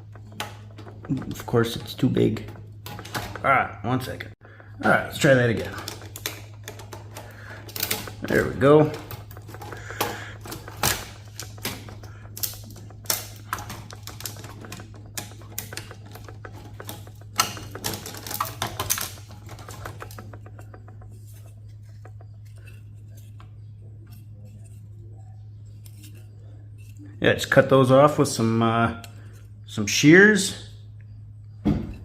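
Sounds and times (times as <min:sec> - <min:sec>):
hand tools clicking on parts: 0:00.0 - 0:24.8
steady low hum: 0:00.0 - 0:32.0.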